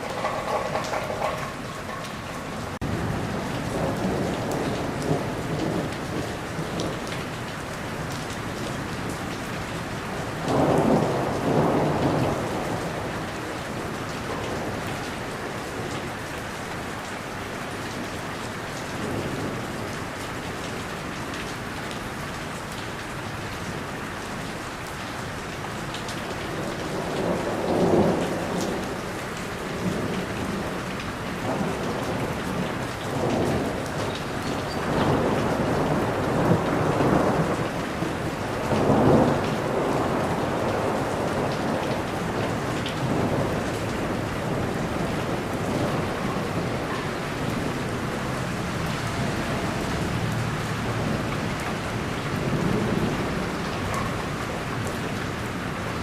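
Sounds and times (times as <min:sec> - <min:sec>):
thunder rumbling: 0:00.0 - 0:07.0, 0:10.2 - 0:15.0, 0:26.5 - 0:55.2
heavy rain: 0:00.0 - 0:56.0.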